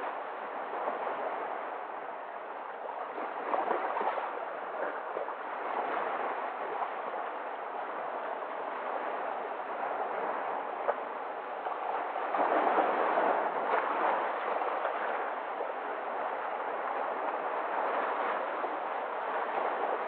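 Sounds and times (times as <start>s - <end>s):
sea waves washing in: 0.0s - 20.0s.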